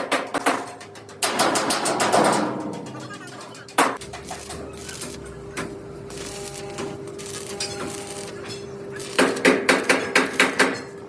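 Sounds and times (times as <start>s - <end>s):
hammer striking sheet metal: 0.0s - 3.0s, 9.2s - 10.9s.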